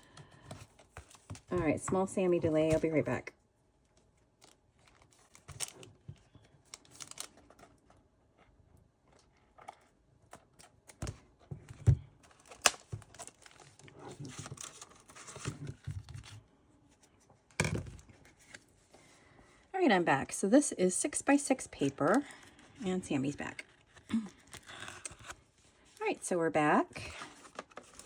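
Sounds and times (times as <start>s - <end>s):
packaging rustling and tearing: 4.4s - 8.0s, 12.2s - 16.4s, 27.2s - 28.0s.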